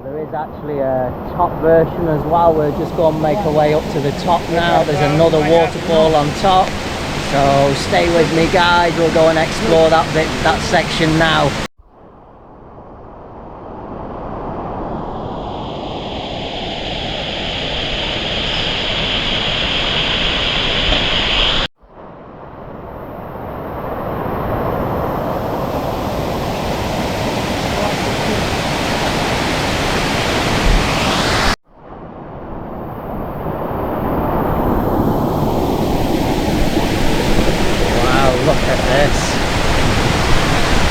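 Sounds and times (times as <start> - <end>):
waterfall rushing: 0.6 - 11.7, 25.2 - 31.6, 34.1 - 40.9.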